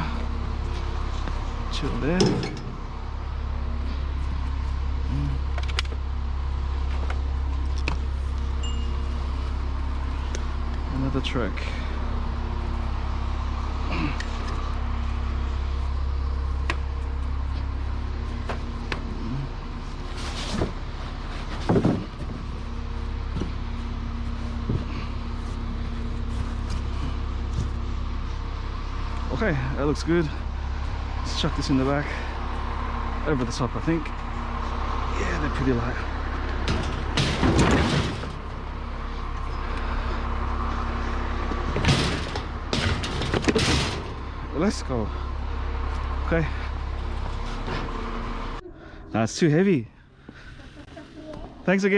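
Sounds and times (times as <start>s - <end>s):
steady low hum: 0.0s - 51.9s
vehicle engine idling: 0.0s - 51.9s
bicycles clattering and knocking: 20.2s - 22.7s, 35.9s - 38.8s, 41.1s - 45.2s.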